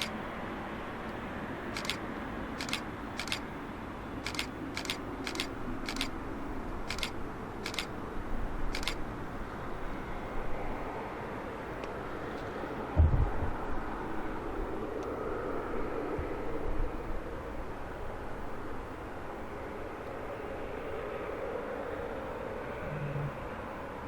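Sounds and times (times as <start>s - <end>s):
sharp clicks: 1.8s - 2.0s, 2.6s - 3.4s, 4.2s - 6.2s, 6.9s - 7.9s, 8.7s - 9.0s.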